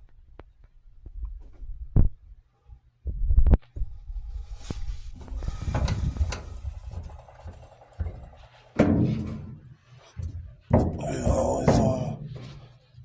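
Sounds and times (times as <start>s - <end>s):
hands working on dryer parts: 4.6s - 13.0s.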